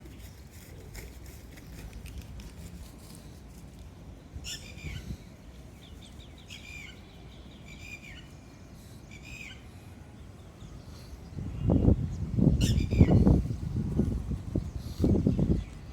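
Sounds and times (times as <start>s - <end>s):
bird chirping: 4.4s - 9.7s.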